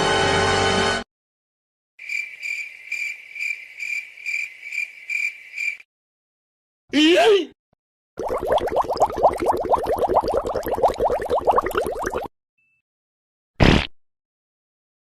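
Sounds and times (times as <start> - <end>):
cricket chirping: 2.0 - 5.9.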